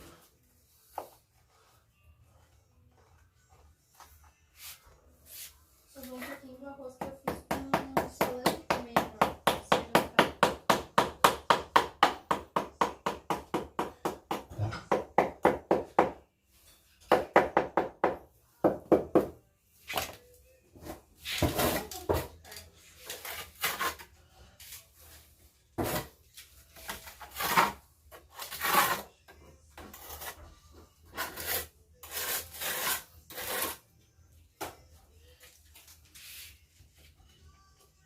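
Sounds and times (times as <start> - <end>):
hand tool scraping masonry: 20.8 - 24.2, 25.8 - 30.5, 31.1 - 33.8.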